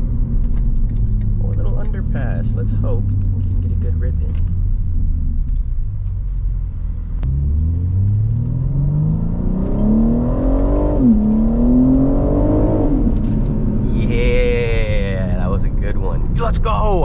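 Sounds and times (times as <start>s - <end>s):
car exhaust accelerating: 0.0s - 17.0s.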